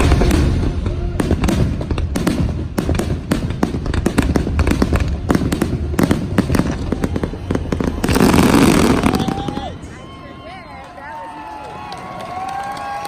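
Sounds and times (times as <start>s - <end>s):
low rumble: 0.0s - 9.8s
fireworks bangs and crackles: 0.0s - 13.0s.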